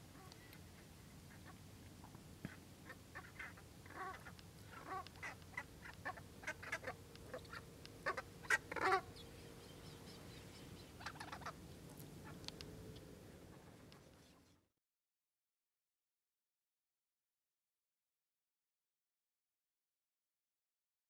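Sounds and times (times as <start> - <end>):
birds clucking calls: 0.1 - 14.5.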